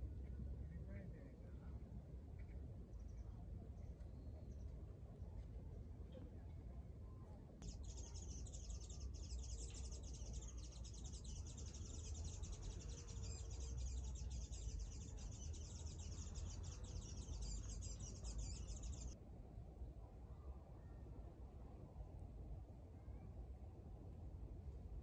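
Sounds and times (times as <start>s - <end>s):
small birds chirping: 7.6s - 19.2s.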